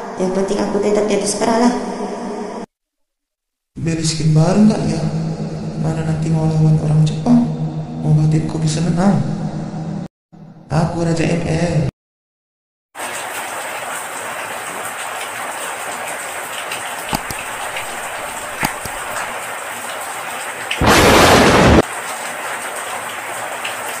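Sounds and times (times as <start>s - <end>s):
heavy rain: 13.0s - 24.0s
sharp cracks: 17.1s - 19.3s, 20.7s - 21.9s
thunderclap: 20.8s - 21.9s.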